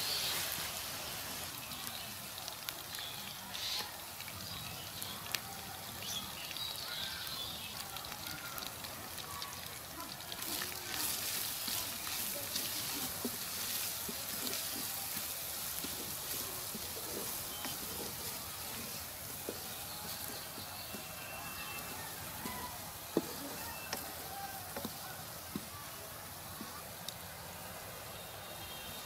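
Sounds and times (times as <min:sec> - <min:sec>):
spices sizzling in hot oil: 0:00.0 - 0:27.5
wooden spatula scraping pan: 0:11.0 - 0:25.0.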